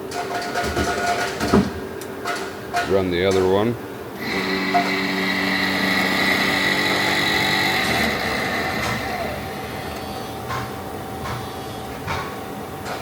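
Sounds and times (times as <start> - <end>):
low machine hum: 2.7 - 13.0
lathe drive high whine: 4.2 - 10.4.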